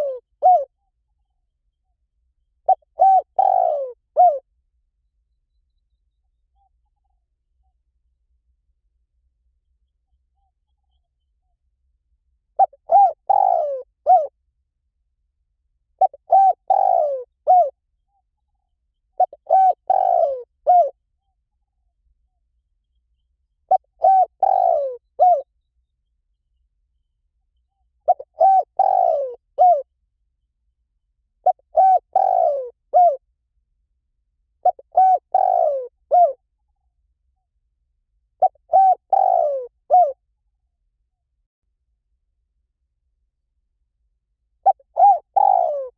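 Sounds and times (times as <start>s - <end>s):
dove cooing: 0.0s - 0.8s, 2.6s - 4.5s, 12.6s - 14.3s, 16.0s - 17.8s, 19.2s - 21.0s, 23.7s - 25.5s, 28.0s - 29.9s, 31.4s - 33.2s, 34.6s - 36.4s, 38.4s - 40.2s, 44.6s - 45.9s.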